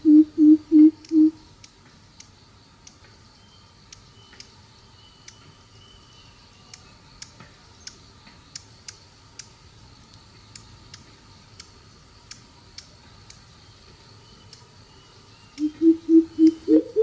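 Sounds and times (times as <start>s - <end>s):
faint high-pitched hum: 0.0s - 17.0s
faint sharp ticks: 0.9s - 3.2s, 3.9s - 4.6s, 5.2s - 5.5s, 6.7s - 14.7s, 15.5s - 16.6s.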